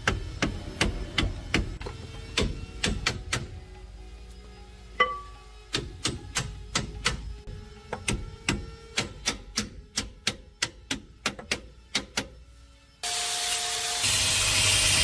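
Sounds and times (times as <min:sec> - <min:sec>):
hammer striking metal: 0:05.0 - 0:07.2.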